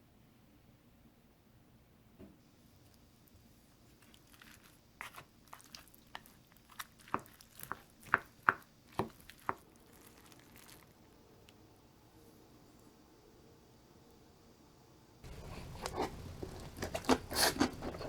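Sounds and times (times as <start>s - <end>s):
eating crunches and clicks: 3.9s - 11.0s, 15.3s - 18.0s.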